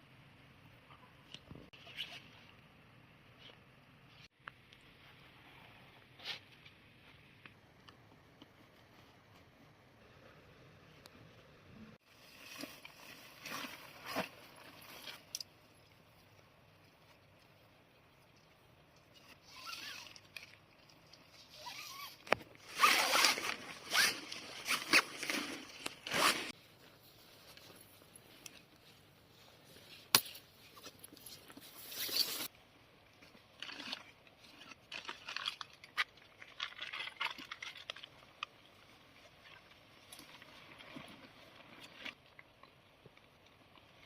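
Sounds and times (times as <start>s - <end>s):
gear scraping and rustling: 19.0s - 32.5s, 33.2s - 42.8s
zipper pulled: 21.5s - 26.6s.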